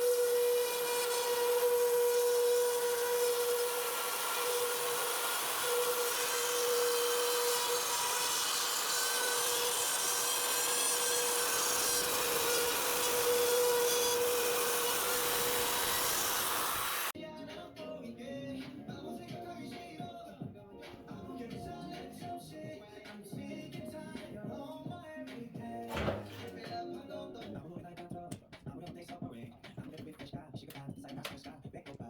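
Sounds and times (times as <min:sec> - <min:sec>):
power tool whining and sawing: 0:00.0 - 0:17.2.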